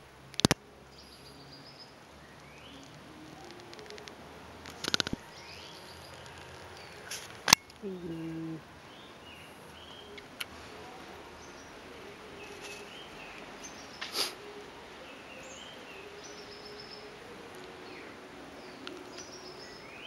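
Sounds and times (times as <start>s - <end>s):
faint outdoor background noise: 0.0s - 20.0s
small birds chirping: 0.3s - 20.0s
brief sharp hiss: 14.0s - 14.5s.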